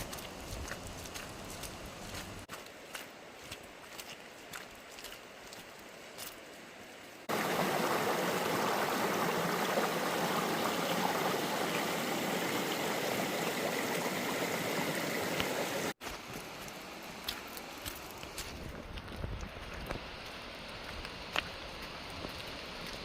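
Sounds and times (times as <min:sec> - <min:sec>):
creek water rushing: 0:00.0 - 0:18.4.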